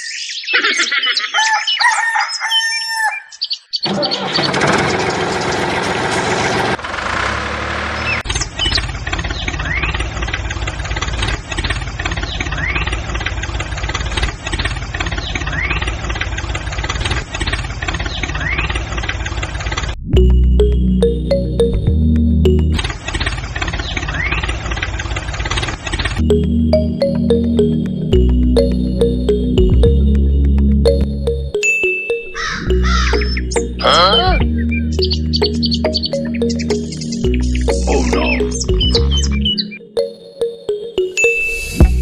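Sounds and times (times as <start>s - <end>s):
rooster crowing: 1.3s - 3.4s
engine running: 3.9s - 31.6s, 32.7s - 39.5s.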